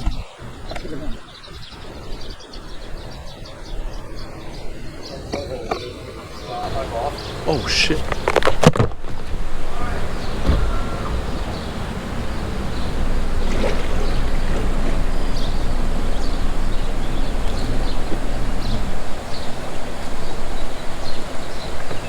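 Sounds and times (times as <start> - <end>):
water rushing: 0.0 - 22.0
wind buffeting microphone: 0.0 - 22.0.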